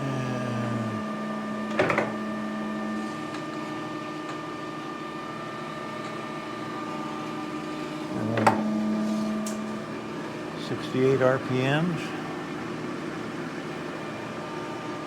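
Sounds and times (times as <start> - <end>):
grinder and lathe humming: 0.0 - 3.9, 6.8 - 10.0.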